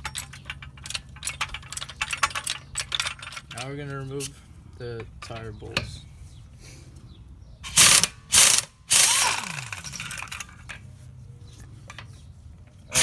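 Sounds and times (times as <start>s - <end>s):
impact wrench spinning: 7.7s - 10.4s.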